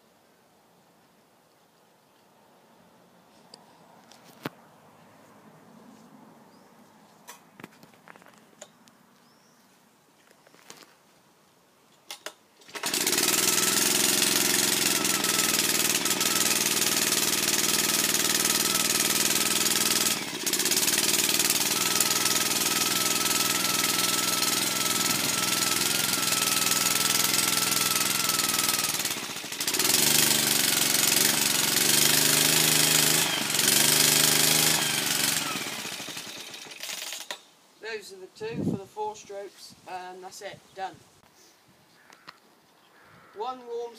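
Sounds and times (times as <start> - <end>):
mower engine running: 12.6 - 37.4.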